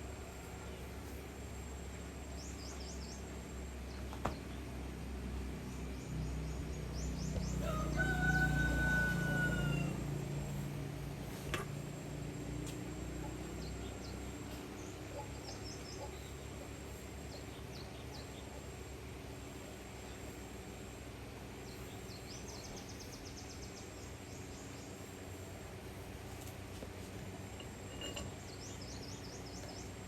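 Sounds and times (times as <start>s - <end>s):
steady low hum: 0.0s - 30.0s
small birds chirping: 13.1s - 18.9s.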